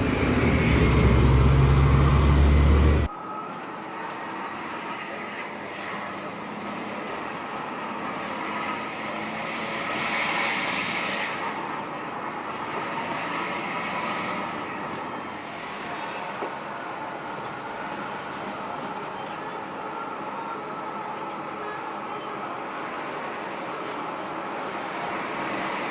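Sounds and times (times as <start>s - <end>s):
bus engine and road noise: 0.0s - 3.2s, 3.9s - 25.9s.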